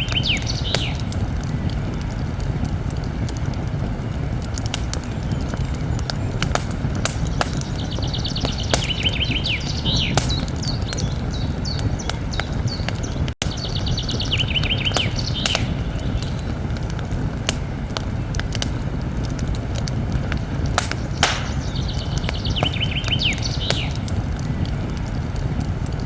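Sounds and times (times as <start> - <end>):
songbird singing: 0.0 - 2.0, 4.9 - 16.7, 20.4 - 25.0
campfire crackling and popping: 0.0 - 26.0.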